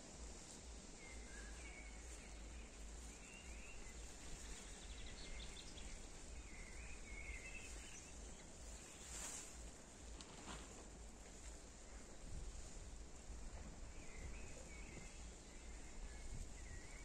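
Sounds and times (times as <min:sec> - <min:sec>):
low rumble and hiss: 0:00.0 - 0:17.0
faint bird chirps: 0:00.9 - 0:09.7, 0:13.8 - 0:17.0.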